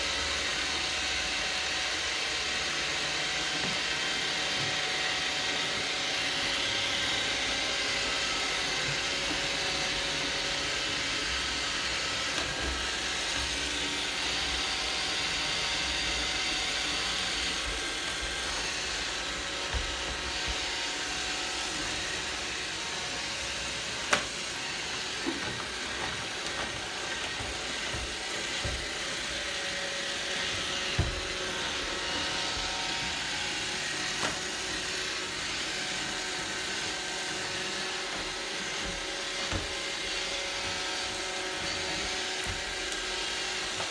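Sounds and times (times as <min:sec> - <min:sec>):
robot vacuum whirring hum: 0:00.0 - 0:43.9.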